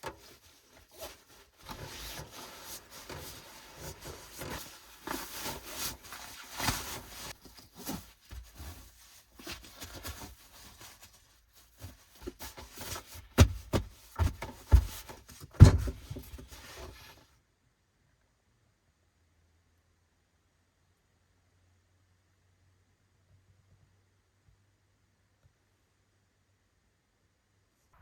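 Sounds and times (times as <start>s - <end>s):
rustling of things handled: 0.0s - 17.3s
dull thumps: 12.2s - 16.6s.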